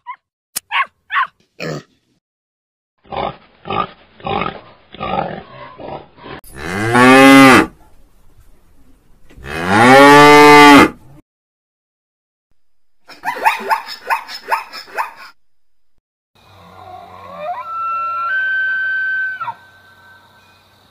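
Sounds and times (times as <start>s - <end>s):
cow mooing: 9.4s - 11.0s.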